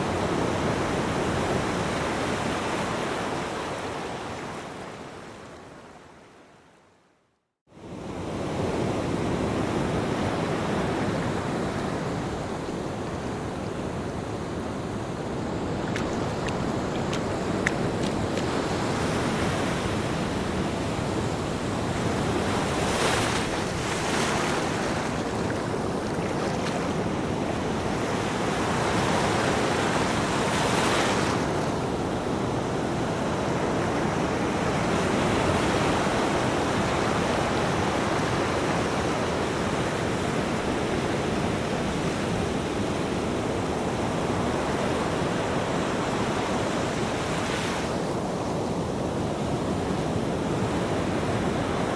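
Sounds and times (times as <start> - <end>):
ocean waves breaking on beach: 0.0 - 6.2, 7.7 - 51.9.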